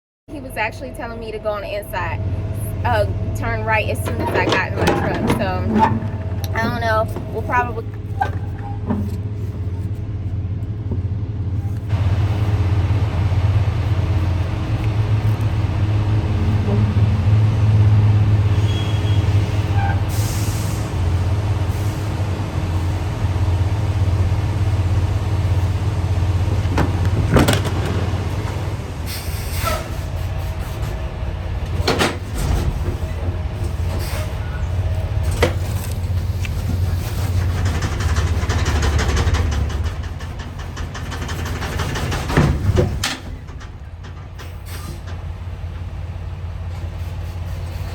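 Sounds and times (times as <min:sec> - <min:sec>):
truck diesel engine rumble: 0:00.3 - 0:47.9
sharp clunks: 0:03.9 - 0:07.6, 0:26.5 - 0:28.9.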